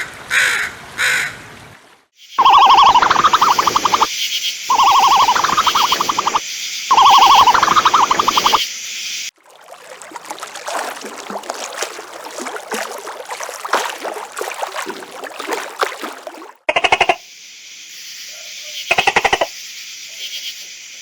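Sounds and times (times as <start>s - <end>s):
animal harsh pulsed calls: 2.4s - 4.1s, 4.7s - 8.6s, 16.7s - 17.2s.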